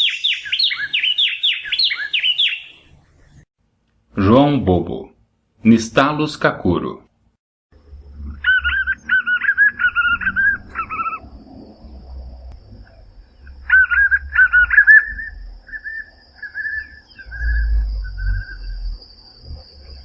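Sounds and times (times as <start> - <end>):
bird calling rhythmic phrases: 0.0 - 2.9, 8.3 - 11.2, 13.4 - 18.7.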